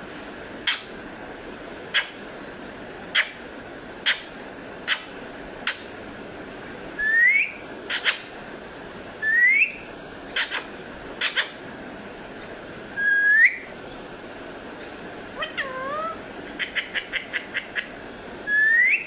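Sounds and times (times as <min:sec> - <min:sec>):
parrot whistling: 0:07.0 - 0:08.2, 0:09.2 - 0:11.6, 0:13.0 - 0:13.7, 0:15.4 - 0:17.9, 0:18.5 - 0:19.0.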